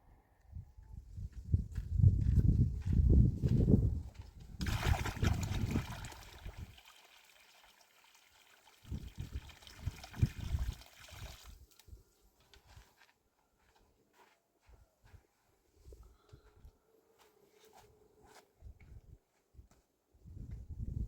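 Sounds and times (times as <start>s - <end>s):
water pouring in a trickle: 4.6s - 11.8s.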